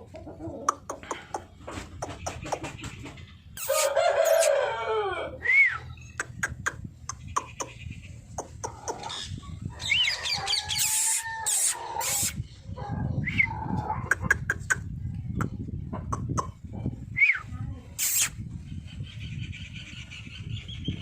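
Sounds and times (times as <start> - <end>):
high squeaky calls: 3.6 - 4.6, 8.7 - 12.4, 18.0 - 18.4
roosters crowing: 3.6 - 5.9, 8.8 - 14.1.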